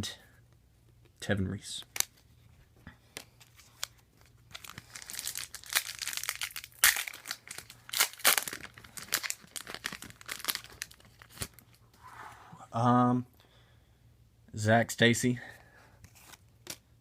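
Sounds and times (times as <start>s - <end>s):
wrapper tearing and crinkling: 3.6s - 11.8s.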